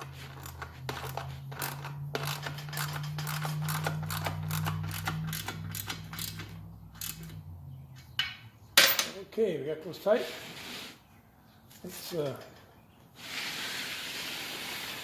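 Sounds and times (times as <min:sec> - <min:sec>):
hand tools clicking on metal: 0:00.0 - 0:07.4.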